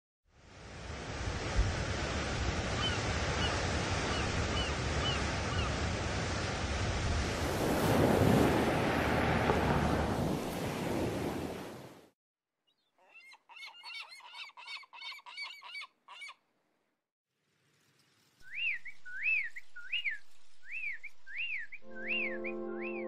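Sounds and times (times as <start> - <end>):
surf: 0.6 - 12.1
short bird calls: 12.7 - 16.4
rising and falling whistled bird note: 18.4 - 23.0.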